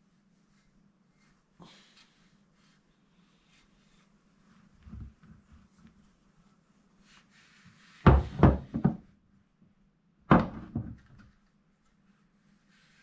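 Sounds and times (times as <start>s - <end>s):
hard objects knocking on workbench: 8.1s - 9.1s.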